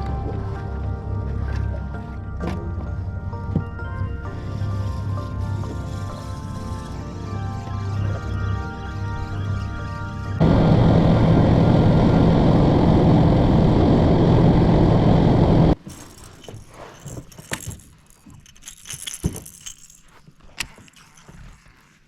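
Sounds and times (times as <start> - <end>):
boat motor running at speed: 10.4 - 15.8.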